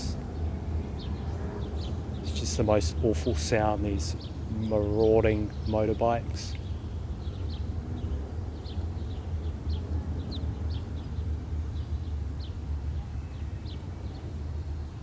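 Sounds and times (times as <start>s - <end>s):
motorbike engines rumbling: 0.0s - 14.7s
small birds chirping: 0.0s - 15.0s.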